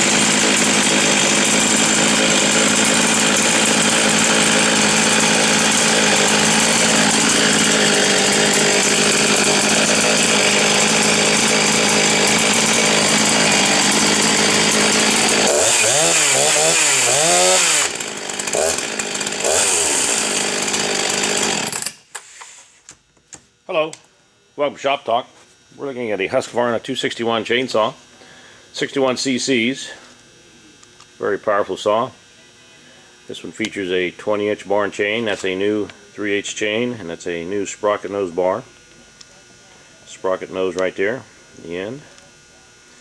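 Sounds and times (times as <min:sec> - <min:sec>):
chainsaw engine revving: 0:00.0 - 0:22.0.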